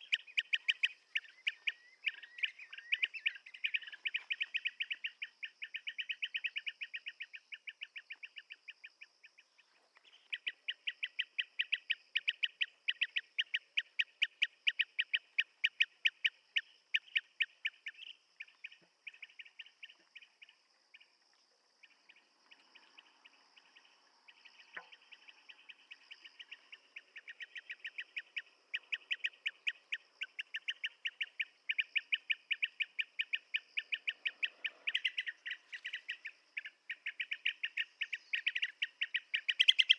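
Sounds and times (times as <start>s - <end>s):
bird calling in clipped notes: 0.0s - 8.8s, 24.6s - 39.9s.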